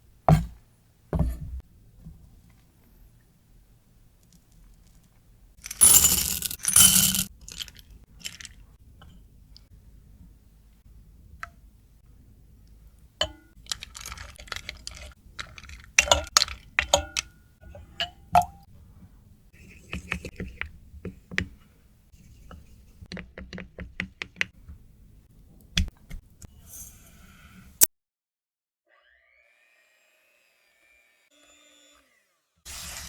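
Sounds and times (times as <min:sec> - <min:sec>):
utensils clinking against a bowl: 0:05.6 - 0:07.3.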